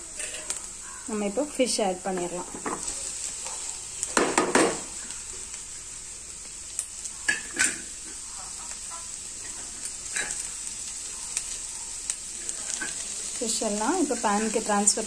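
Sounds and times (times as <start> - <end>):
fish and onions sizzling in pan: 0.0 - 15.0
clattering in pan: 7.3 - 8.2, 9.4 - 10.5.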